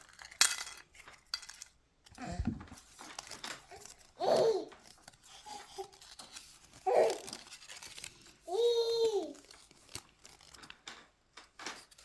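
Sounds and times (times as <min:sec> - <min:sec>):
toy packaging rustling: 0:00.0 - 0:12.0
small child babbling: 0:03.7 - 0:04.8, 0:06.8 - 0:07.4, 0:08.5 - 0:09.5.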